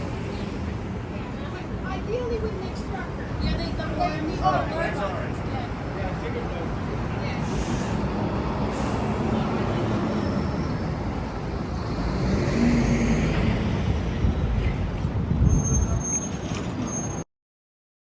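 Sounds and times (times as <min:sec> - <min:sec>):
city street traffic: 0:00.0 - 0:17.3
wind buffeting microphone: 0:13.3 - 0:16.1.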